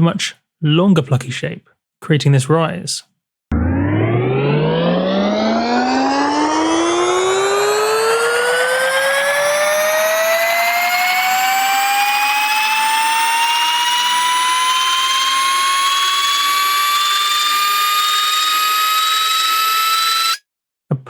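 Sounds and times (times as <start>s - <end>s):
synth riser whoosh: 3.5s - 16.9s.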